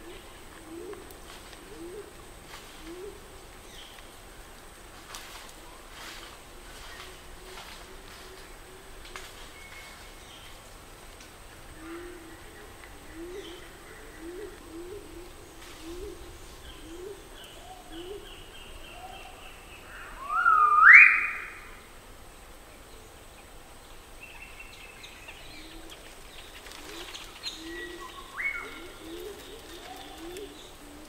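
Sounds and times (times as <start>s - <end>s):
bird whistling: 20.2s - 21.7s.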